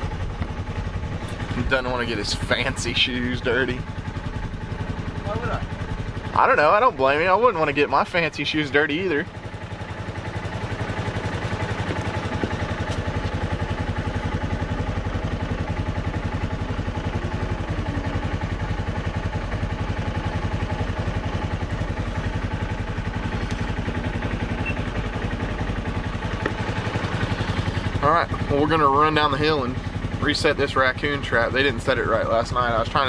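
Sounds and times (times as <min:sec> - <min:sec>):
dirt bike engine chugging: 0:00.0 - 0:33.0.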